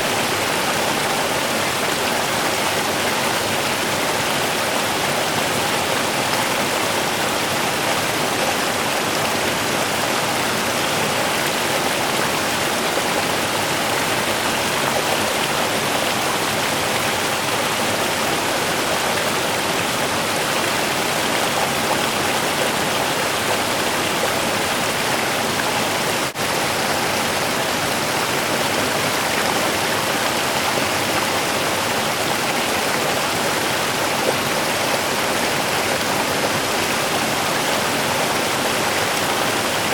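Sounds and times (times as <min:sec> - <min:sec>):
river water rushing and babbling: 0:00.0 - 0:39.9.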